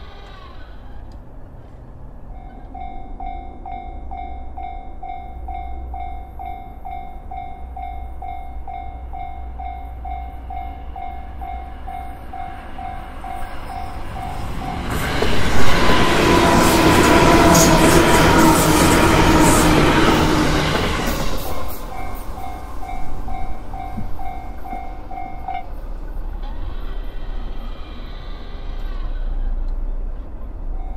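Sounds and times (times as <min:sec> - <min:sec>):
electric train passing: 0:00.0 - 0:30.9
level crossing warning bell: 0:02.3 - 0:25.9.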